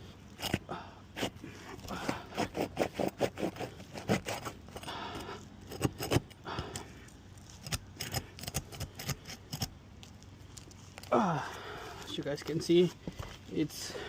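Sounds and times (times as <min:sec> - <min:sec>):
pry tool scraping shingles: 0:00.0 - 0:11.1.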